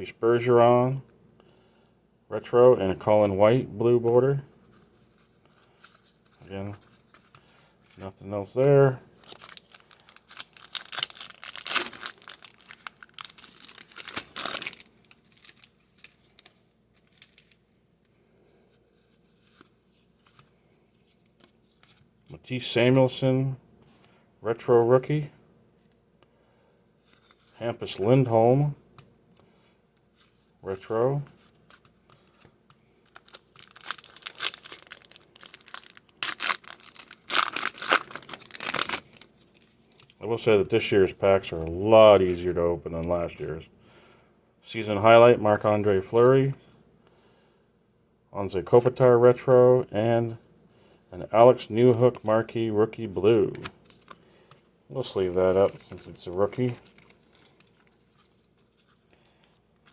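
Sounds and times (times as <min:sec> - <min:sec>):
cards being handled: 0:03.2 - 0:17.6, 0:18.4 - 0:22.1, 0:28.9 - 0:40.2, 0:53.1 - 0:59.9
wrapper tearing and crinkling: 0:09.2 - 0:17.6, 0:33.1 - 0:40.2, 0:55.2 - 0:58.9.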